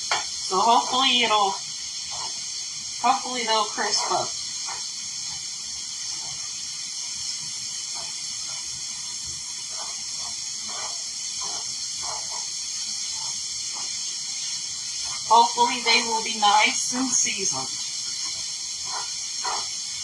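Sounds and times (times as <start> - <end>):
nuts sizzling in a frying pan: 0.0 - 20.0
faint crackles: 0.4 - 19.7.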